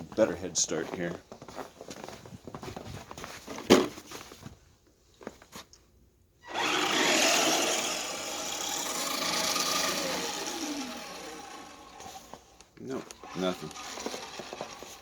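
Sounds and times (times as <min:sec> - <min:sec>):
tires spinning in snow: 0:06.4 - 0:12.5, 0:13.3 - 0:15.0
toy truck electric motor whining: 0:06.4 - 0:15.0.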